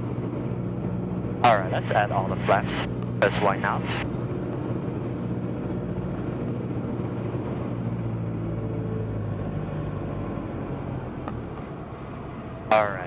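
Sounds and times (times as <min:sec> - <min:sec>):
aircraft engine and propeller droning: 0:00.0 - 0:13.0.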